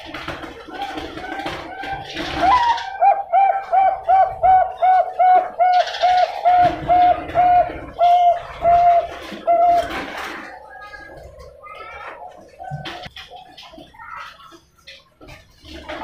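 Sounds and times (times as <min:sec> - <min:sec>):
dove cooing: 0:00.7 - 0:11.1.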